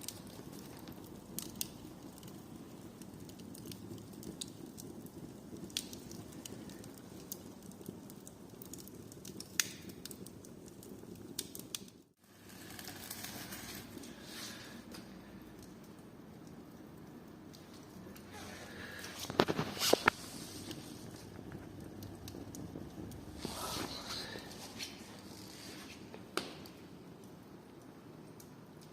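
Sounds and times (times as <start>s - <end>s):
fire crackling and popping: 0.0s - 28.9s
fire hissing: 0.0s - 28.9s.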